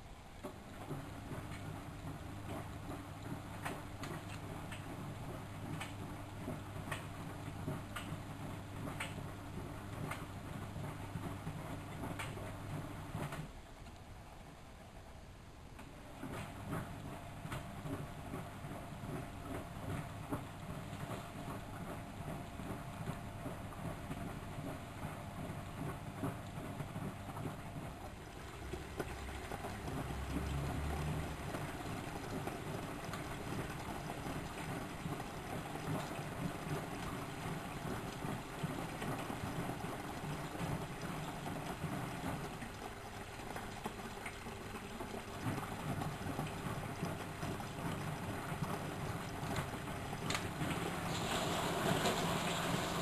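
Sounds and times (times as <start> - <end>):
washing machine running: 0.0 - 53.0
water sloshing in drum: 16.2 - 53.0.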